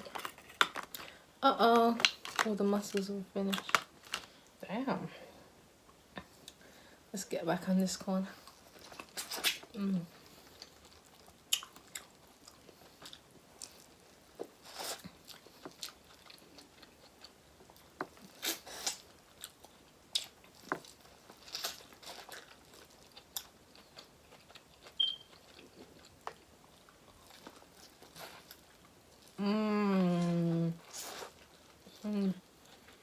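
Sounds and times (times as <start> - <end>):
crunching and wet chewing: 8.4 - 29.4.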